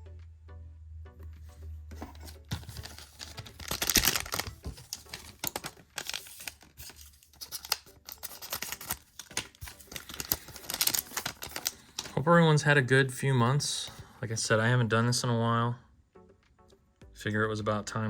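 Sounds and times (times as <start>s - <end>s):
card pack rustling and tearing: 2.0s - 12.2s.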